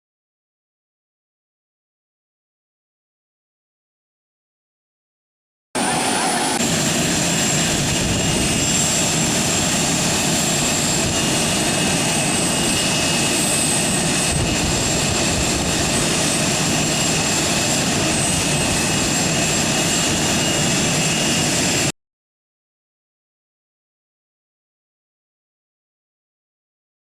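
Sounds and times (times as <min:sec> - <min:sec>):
jet engines roaring and whining: 0:05.8 - 0:21.9.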